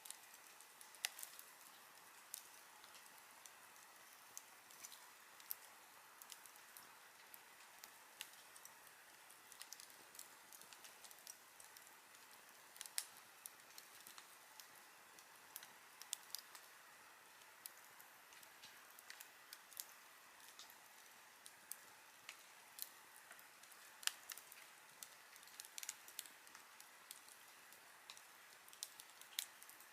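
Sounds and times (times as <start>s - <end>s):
campfire crackling: 0.0s - 29.9s
fire pops and snaps: 0.1s - 29.9s.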